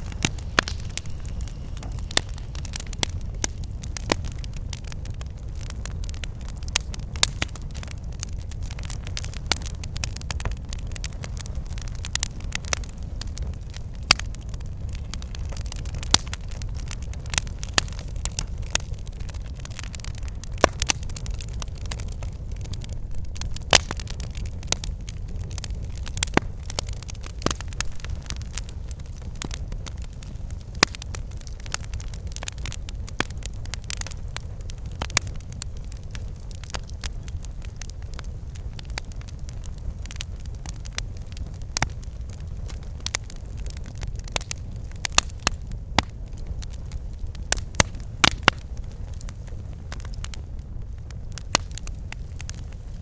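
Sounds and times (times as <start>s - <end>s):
low rumble: 0.0s - 6.6s
steady low rumble: 0.0s - 12.0s, 18.3s - 30.7s
campfire crackling and popping: 0.0s - 53.0s.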